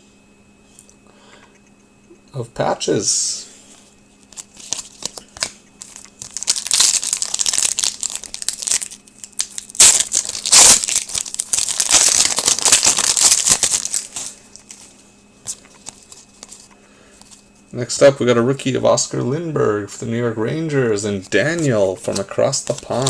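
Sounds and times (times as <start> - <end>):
foil wrapper crinkling: 4.2 - 17.5, 21.2 - 23.0.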